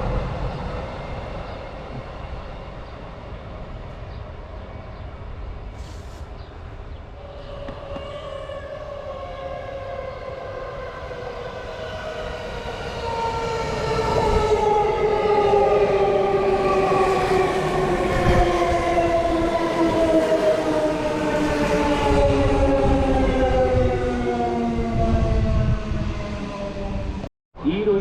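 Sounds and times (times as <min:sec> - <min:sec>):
train wheels rumbling on rails: 0:05.7 - 0:08.7.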